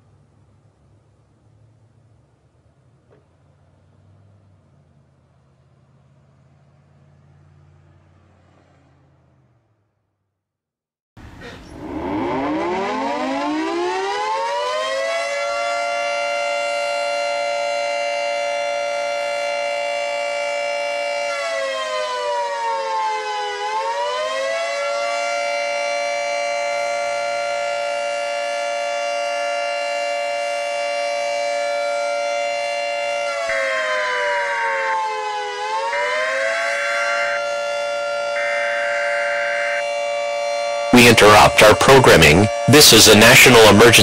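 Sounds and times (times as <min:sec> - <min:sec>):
siren wailing: 0:11.6 - 0:44.0.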